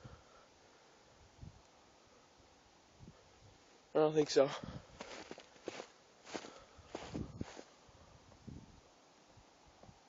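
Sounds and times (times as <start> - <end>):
footsteps in snow: 5.0 - 7.8.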